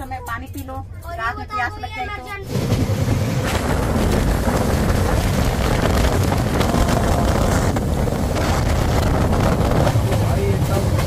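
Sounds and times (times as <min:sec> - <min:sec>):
train rumbling along track: 0:00.0 - 0:11.0
wind rushing over microphone: 0:02.4 - 0:11.0.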